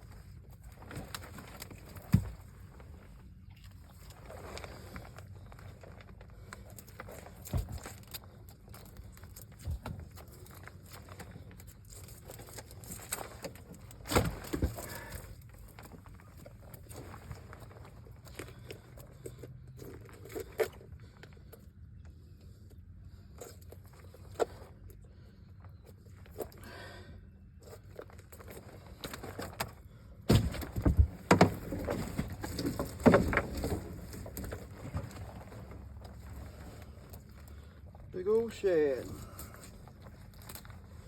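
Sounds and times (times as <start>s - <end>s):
loud thumps and clatter: 30.3s - 35.0s
knocks and rattles in a boat: 30.3s - 36.6s.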